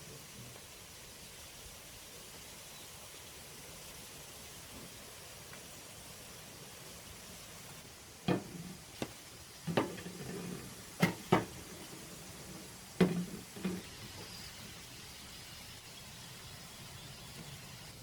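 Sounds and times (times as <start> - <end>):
sharp knocks: 8.3 - 10.1, 11.0 - 11.7, 13.0 - 13.9.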